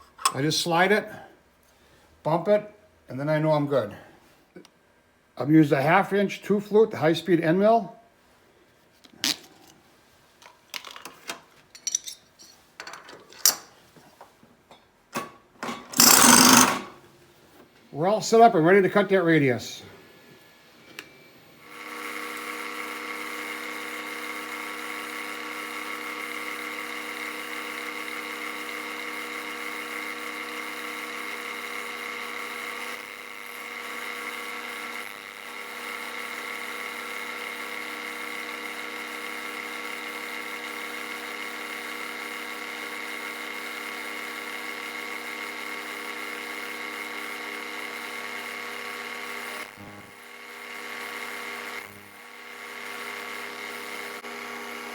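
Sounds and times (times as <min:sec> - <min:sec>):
milling machine whining: 0:15.7 - 0:17.0.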